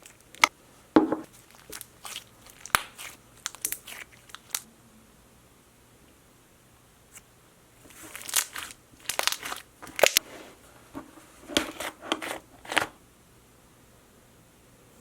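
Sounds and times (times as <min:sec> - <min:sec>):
hands squeezing crackly slime: 0:01.3 - 0:04.7, 0:07.9 - 0:10.2.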